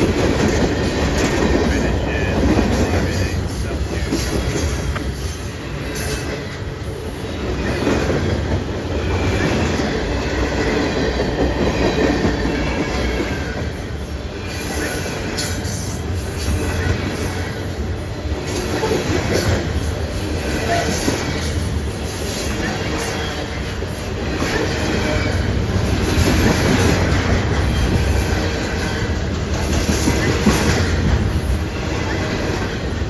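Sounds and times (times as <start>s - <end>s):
train wheels rumbling and clattering: 0.0s - 33.0s.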